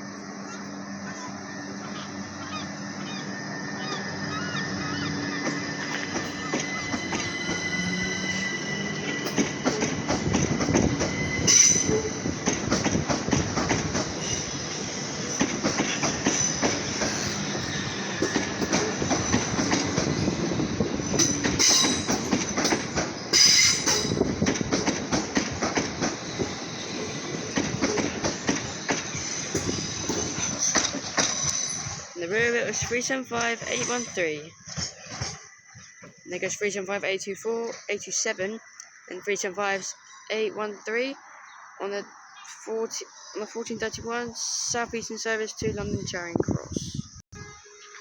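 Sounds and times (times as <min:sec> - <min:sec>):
train flanges squealing: 0:00.0 - 0:44.9
train wheels clicking over rail joints: 0:05.2 - 0:36.2.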